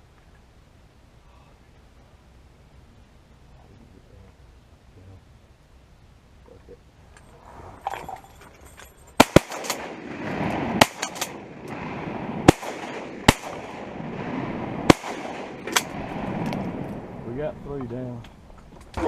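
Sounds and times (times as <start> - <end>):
shotgun blasts: 9.2 - 17.1
rumbling echo of shots: 9.2 - 17.3.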